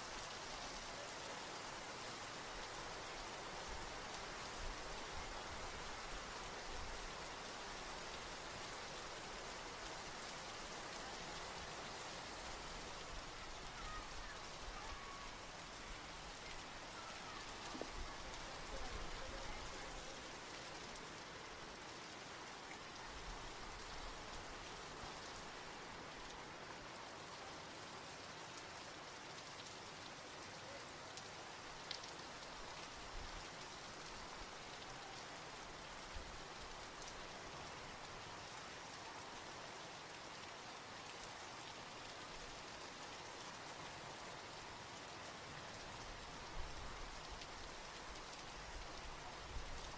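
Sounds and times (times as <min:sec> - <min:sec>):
soft rain falling: 0:00.0 - 0:49.9
rain drop ticks: 0:31.2 - 0:32.9.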